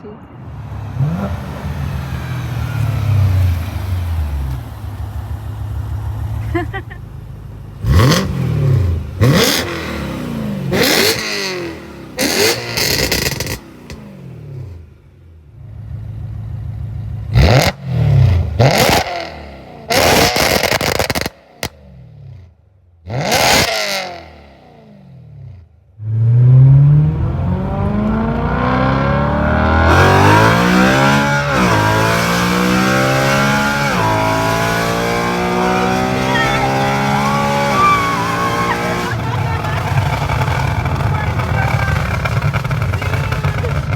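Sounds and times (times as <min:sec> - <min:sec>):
car engine revving: 0:00.1 - 0:43.9.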